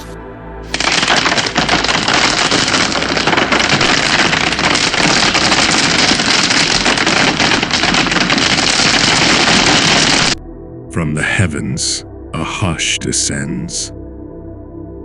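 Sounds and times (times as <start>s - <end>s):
heavy rain on hard surface: 0.7s - 10.4s.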